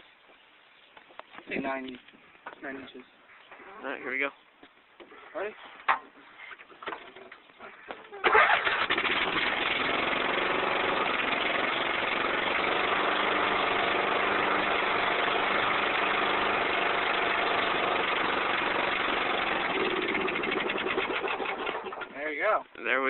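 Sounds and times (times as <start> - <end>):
loud tractor engine idling: 8.3 - 22.1.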